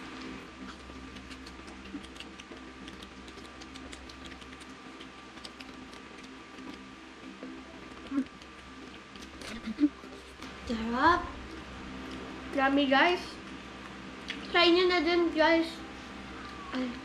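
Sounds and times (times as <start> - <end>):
chewing crispy fried chicken: 0.0 - 10.8, 11.4 - 12.5
faint steady hum: 0.0 - 17.0.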